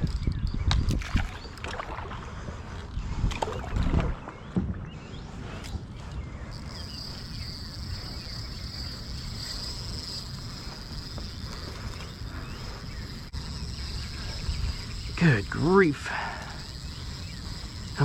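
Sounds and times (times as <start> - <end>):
insects trilling: 6.4 - 18.0.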